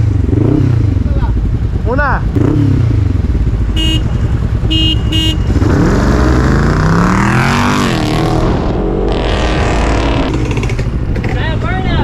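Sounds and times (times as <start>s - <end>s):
engine revving hard: 5.5s - 10.7s.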